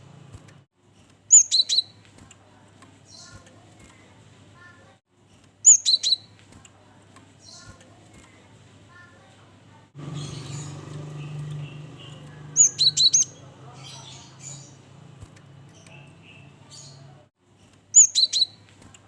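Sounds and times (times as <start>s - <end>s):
faint bird chirps: 1.3s - 2.0s, 5.6s - 6.4s, 10.1s - 14.8s, 17.9s - 18.7s.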